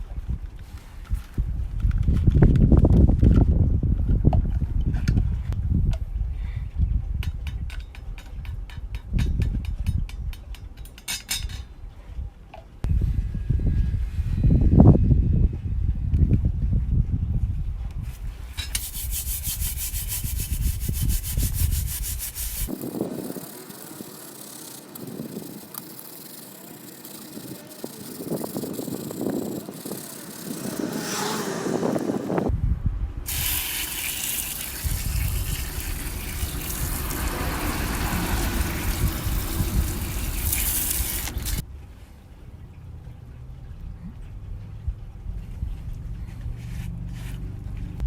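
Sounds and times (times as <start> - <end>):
scrubbing steel fire pit: 18.1 - 31.4, 33.3 - 41.6.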